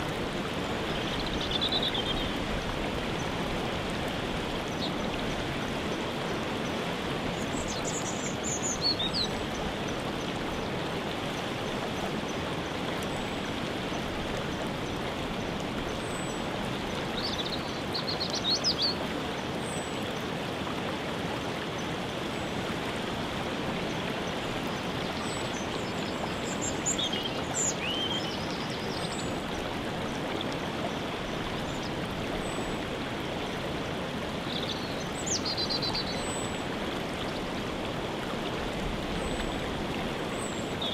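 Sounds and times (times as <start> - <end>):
songbirds chirping: 24.0 - 32.9, 33.8 - 37.6.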